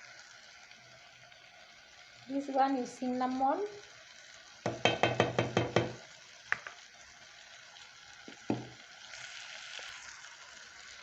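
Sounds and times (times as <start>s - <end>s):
food sizzling in a pot: 0.0s - 11.0s
utensils tapping a pot: 4.7s - 6.8s.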